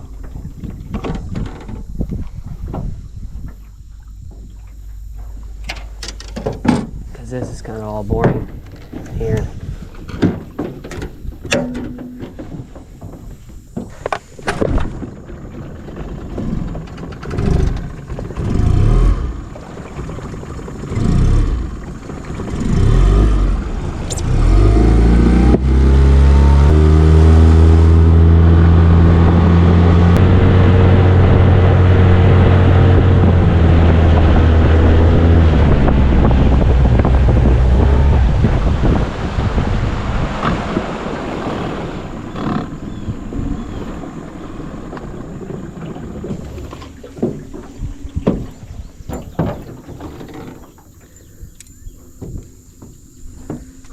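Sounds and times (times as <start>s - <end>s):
boat motor running: 0.0s - 51.2s
wind on microphone: 0.0s - 53.9s
low uneven knocks: 46.3s - 50.7s.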